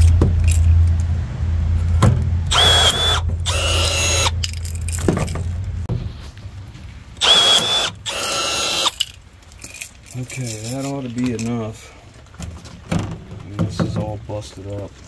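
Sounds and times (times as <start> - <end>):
power tool motor whine with grinding: 2.5 - 4.4, 7.2 - 9.0.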